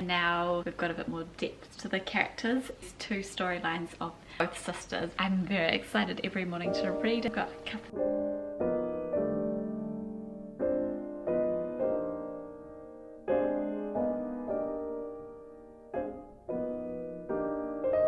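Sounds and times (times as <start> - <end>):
slow gentle piano chords: 6.6 - 18.0.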